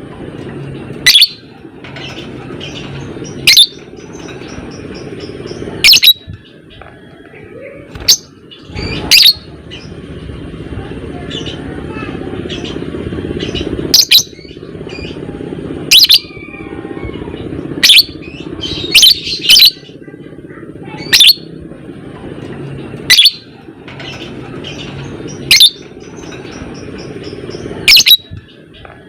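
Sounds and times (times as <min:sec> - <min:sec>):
shrill bird calls: 0:01.1 - 0:01.4, 0:02.6 - 0:04.5, 0:05.2 - 0:06.3, 0:08.1 - 0:09.9, 0:15.9 - 0:19.9, 0:21.0 - 0:21.5, 0:23.1 - 0:23.5, 0:24.7 - 0:28.4.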